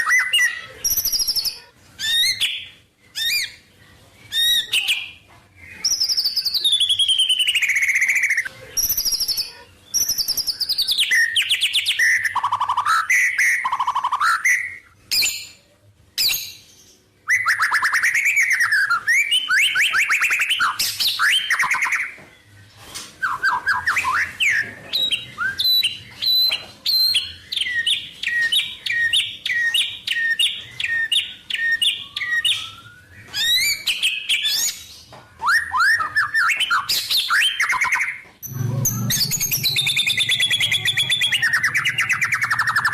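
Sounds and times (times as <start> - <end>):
songbird singing loud whistles: 5.7 - 15.4, 17.2 - 22.2, 23.2 - 42.9.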